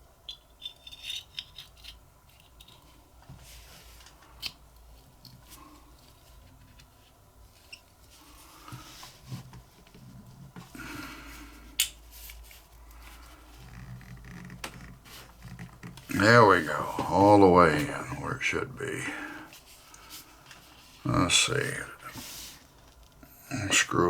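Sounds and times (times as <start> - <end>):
metal parts scraping and rubbing: 0.3 - 2.8.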